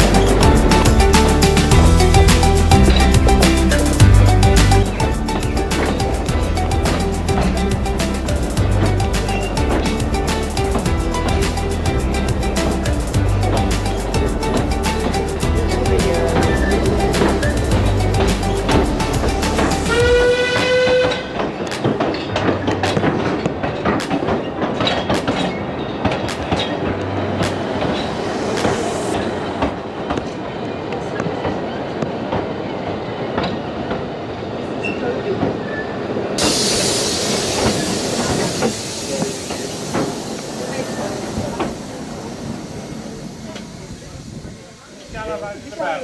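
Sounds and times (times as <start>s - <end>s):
train whistle: 19.9s - 21.3s
steady hiss: 36.4s - 46.0s
train wheels clicking over rail joints: 36.4s - 46.0s.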